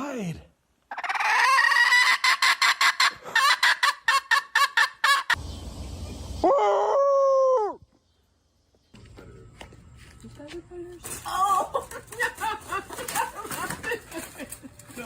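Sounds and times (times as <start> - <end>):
chicken drawn-out call: 0.9 - 5.4.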